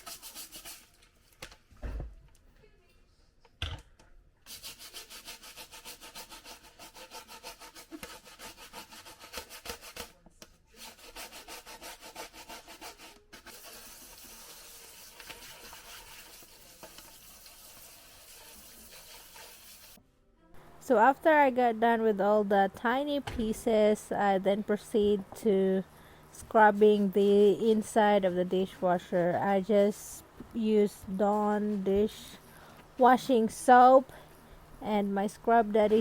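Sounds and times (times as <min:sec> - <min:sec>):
scrubbing strokes on filter: 0:00.0 - 0:01.0, 0:04.5 - 0:20.0.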